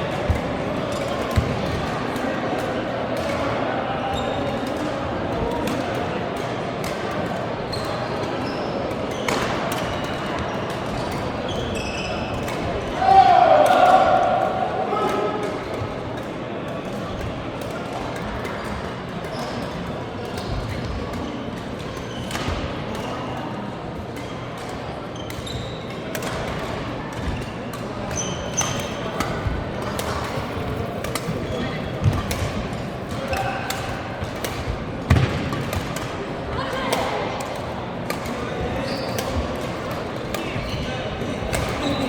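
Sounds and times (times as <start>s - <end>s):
sports hall din: 0.0s - 42.0s
shoes squeaking on floor: 10.0s - 12.4s, 25.1s - 26.0s, 27.4s - 34.1s, 38.6s - 39.6s, 40.4s - 42.0s
shoe squeaks: 11.5s - 12.4s, 25.2s - 25.9s, 28.1s - 29.2s, 38.8s - 39.3s, 41.7s - 42.0s
racket hitting shuttlecock: 26.1s - 42.0s.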